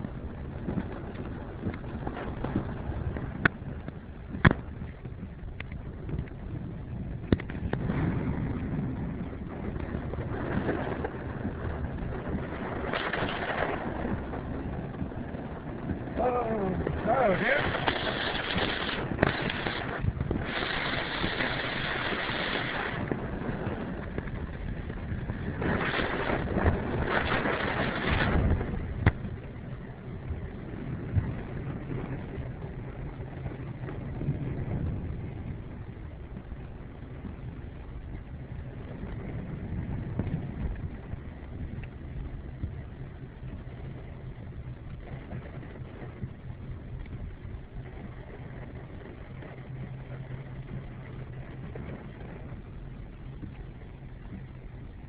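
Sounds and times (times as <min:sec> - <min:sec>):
vehicle rumble: 0:00.0 - 0:55.0
water rushing and splashing: 0:10.2 - 0:29.4.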